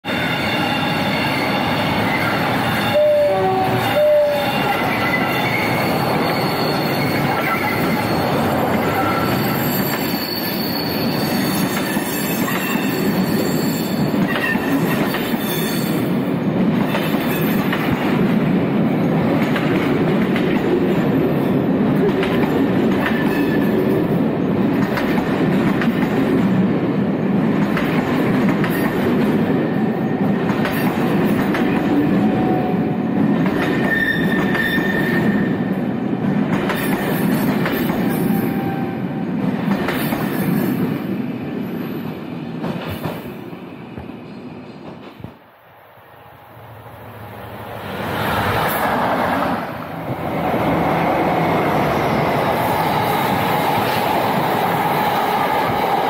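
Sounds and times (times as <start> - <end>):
high wheel squeal: 0.1 - 14.7, 33.8 - 35.6
locomotive horn blasts: 2.8 - 5.5
train wheels rolling: 3.6 - 45.5.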